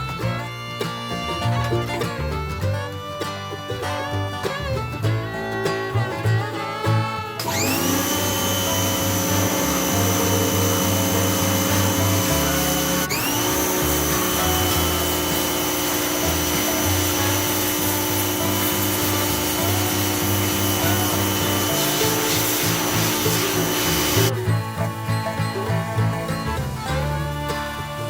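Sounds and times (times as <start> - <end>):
power tool motor whining: 6.4 - 28.0.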